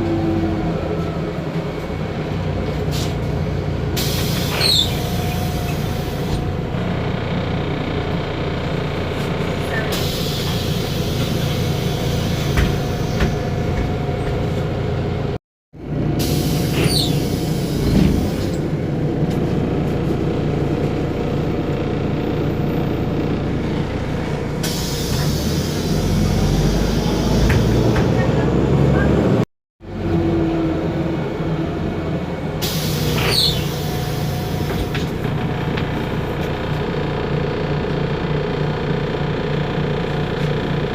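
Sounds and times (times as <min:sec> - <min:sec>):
bus diesel engine droning: 0:00.0 - 0:40.9
short high squeal: 0:04.1 - 0:05.9, 0:16.4 - 0:18.1, 0:32.6 - 0:34.3
hiss: 0:32.6 - 0:34.8.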